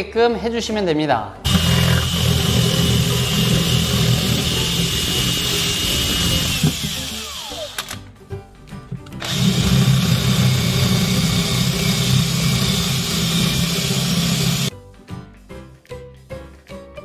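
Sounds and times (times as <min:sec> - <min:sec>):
cordless drill boring into wood: 0:01.5 - 0:08.0, 0:09.2 - 0:14.7.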